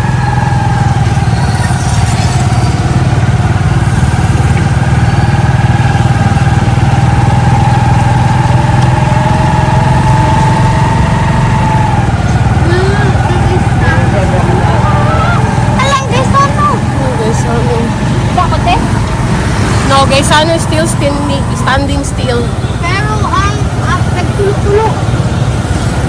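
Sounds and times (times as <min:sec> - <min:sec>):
vehicle engine and road noise: 0:00.0 - 0:26.0
thin steady whine: 0:10.4 - 0:25.0.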